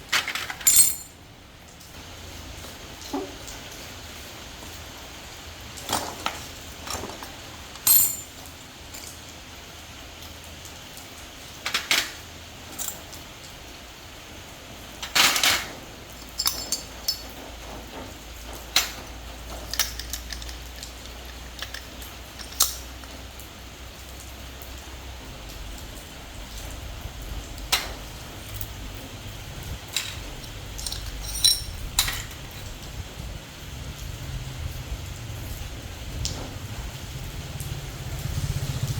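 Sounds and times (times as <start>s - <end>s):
metal tools clinking on workbench: 0.1s - 1.2s, 5.9s - 9.3s, 15.0s - 17.5s, 18.7s - 23.2s, 29.8s - 32.8s.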